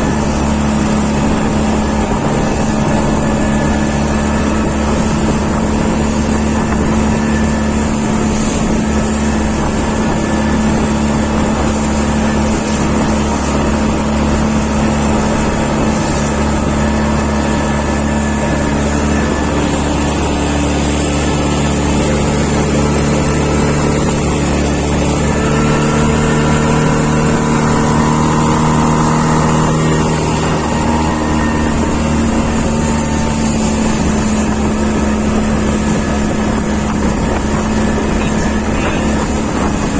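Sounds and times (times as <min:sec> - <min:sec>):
engine running steadily: 0:00.0 - 0:39.9
tone drifting in pitch: 0:16.6 - 0:36.8.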